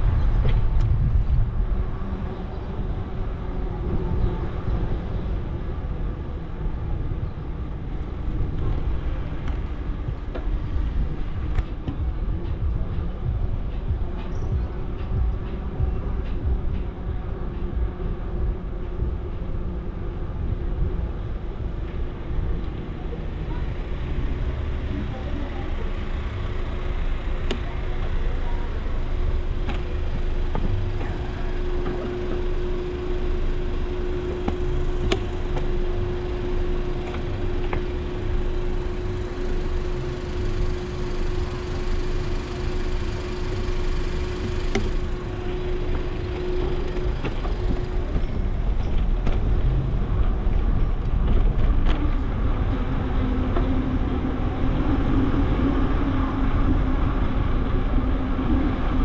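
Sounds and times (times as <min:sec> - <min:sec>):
wind rumbling on microphone: 0:00.0 - 0:25.2
steady hum: 0:00.0 - 0:59.0.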